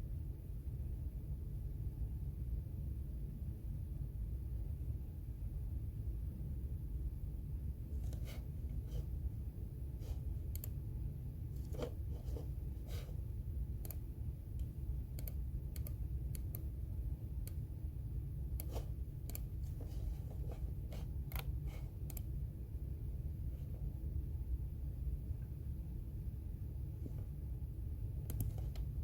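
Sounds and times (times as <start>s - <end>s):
steady low rumble: 0.0s - 29.0s
keyboard typing clicks: 14.6s - 16.7s, 18.6s - 19.5s, 28.2s - 28.9s.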